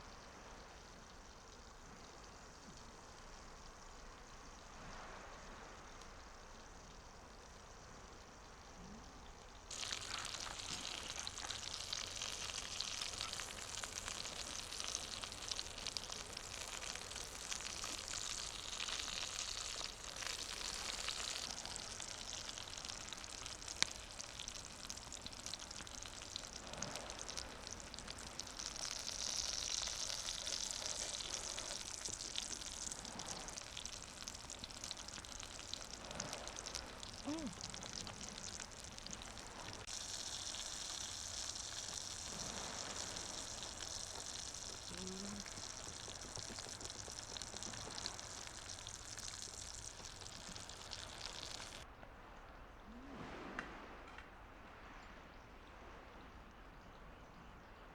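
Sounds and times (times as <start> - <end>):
food sizzling in a pan: 9.7 - 51.8.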